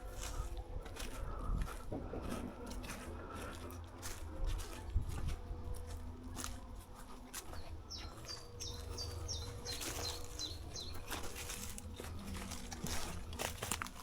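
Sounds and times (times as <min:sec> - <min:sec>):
footsteps crunching in undergrowth: 0:00.0 - 0:14.0
songbird singing: 0:05.8 - 0:14.0.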